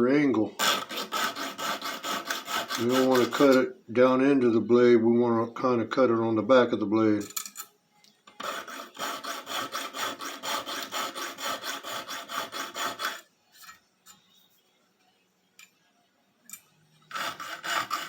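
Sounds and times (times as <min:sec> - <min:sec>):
hand file rasping steel: 0:00.6 - 0:03.6, 0:08.4 - 0:13.3, 0:17.1 - 0:18.0.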